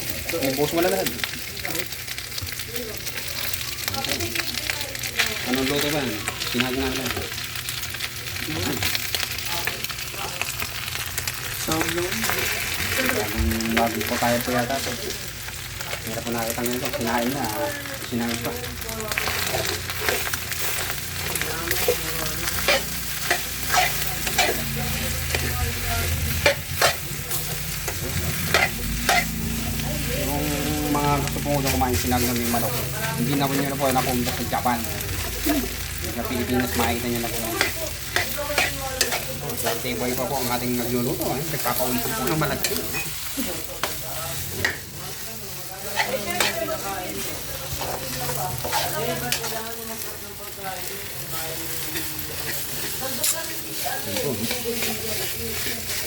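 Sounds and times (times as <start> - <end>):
rice sizzling in a pan: 0.0 - 56.0
spatula scraping a pan: 18.4 - 50.2, 50.9 - 56.0.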